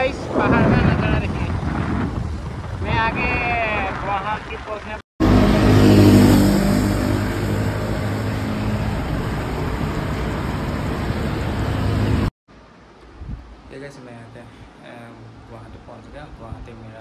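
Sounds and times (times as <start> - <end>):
road and wind rush: 0.0 - 12.3, 13.1 - 13.7.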